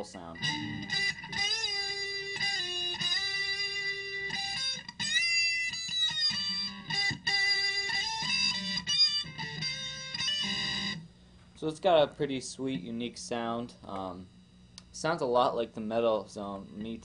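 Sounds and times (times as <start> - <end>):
distorted electric guitar: 0.0 - 11.1.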